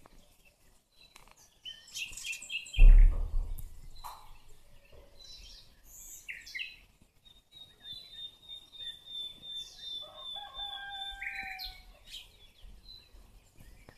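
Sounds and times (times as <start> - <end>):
songbirds chirping: 0.0 - 13.9
rooster crowing: 10.0 - 12.0.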